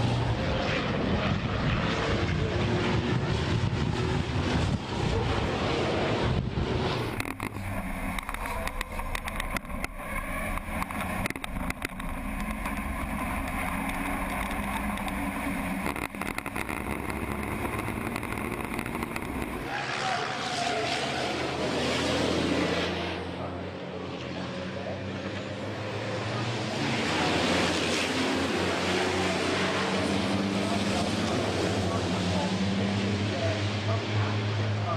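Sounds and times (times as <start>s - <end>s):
diesel engine drone: 0.0s - 34.9s
rushing engine sound: 0.0s - 34.9s
sharp clicks and rattles: 7.0s - 19.7s.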